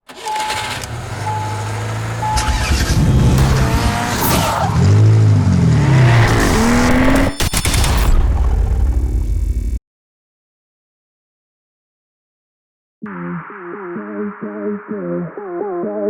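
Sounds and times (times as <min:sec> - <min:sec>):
car engine revving: 0:00.1 - 0:09.7
short beeps: 0:02.2 - 0:03.6.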